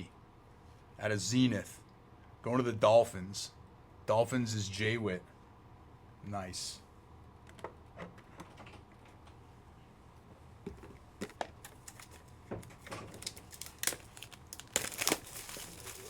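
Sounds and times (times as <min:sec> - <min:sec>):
packaging crinkling and rustling: 0:11.2 - 0:16.0.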